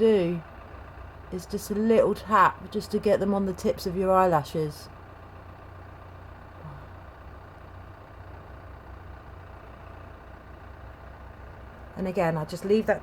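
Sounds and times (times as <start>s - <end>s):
steady low hum: 6.3s - 7.6s.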